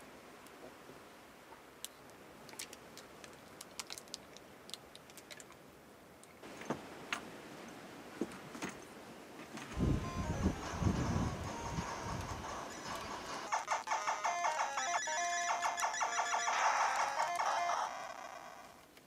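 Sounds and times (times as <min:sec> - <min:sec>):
faint steady hiss: 0:00.0 - 0:14.7.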